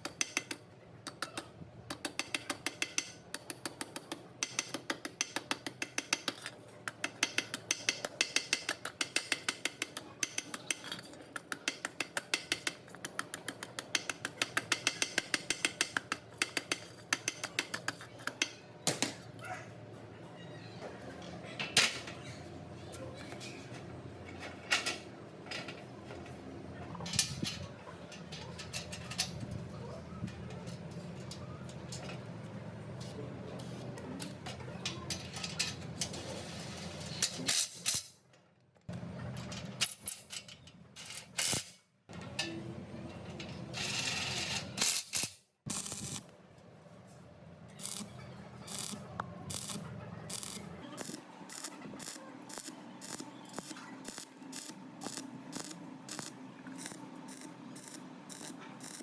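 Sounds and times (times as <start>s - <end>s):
metal parts clinking and scraping: 10.6s - 11.4s.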